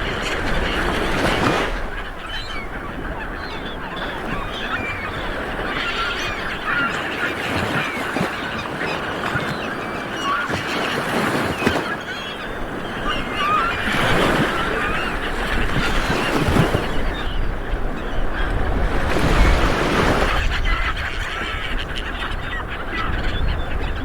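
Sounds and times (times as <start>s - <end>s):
light waves washing: 0.0s - 17.4s
flock of birds chirping: 0.0s - 24.0s.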